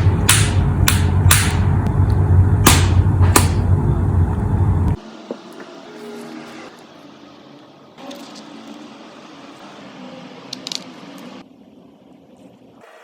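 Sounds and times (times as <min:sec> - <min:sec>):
microwave oven humming: 0:00.0 - 0:06.6.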